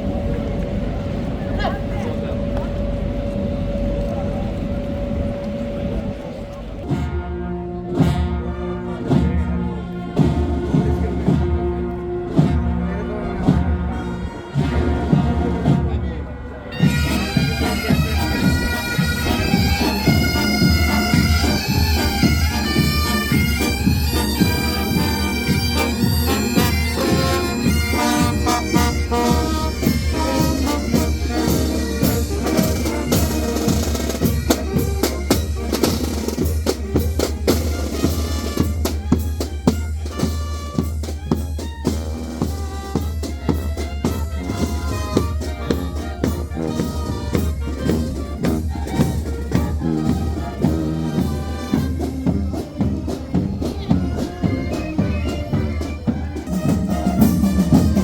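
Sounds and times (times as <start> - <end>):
drumbeats: 6.8 - 58.0
bagpipes playing melody: 16.6 - 58.0.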